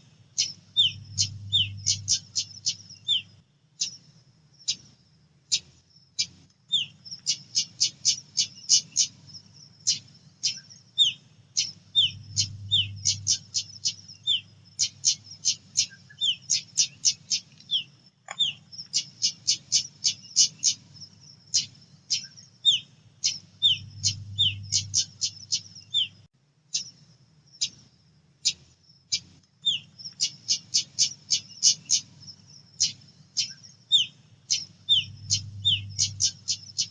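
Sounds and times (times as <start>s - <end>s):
faint low hum: 0.0s - 36.9s
bird calling with sharp chips: 9.9s - 20.8s, 28.4s - 32.1s, 32.8s - 36.9s.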